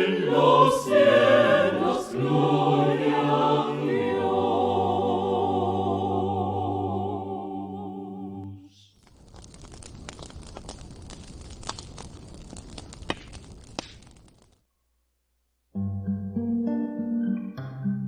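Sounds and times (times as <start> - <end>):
choir holding a chord: 0.0 - 8.7
crackling with sharp pops: 8.4 - 14.8.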